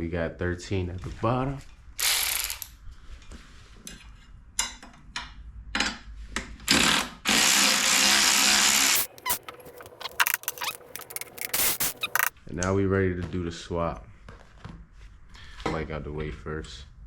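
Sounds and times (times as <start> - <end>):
power tool spinning bolt: 2.0 - 2.7, 7.3 - 12.3.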